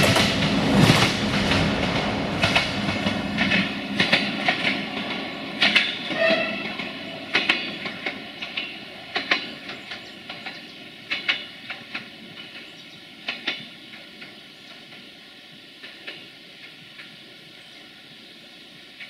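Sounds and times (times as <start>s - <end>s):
train wheels clacking over rail joints: 0.0s - 15.2s, 15.8s - 17.2s
train engine hum: 0.0s - 19.0s.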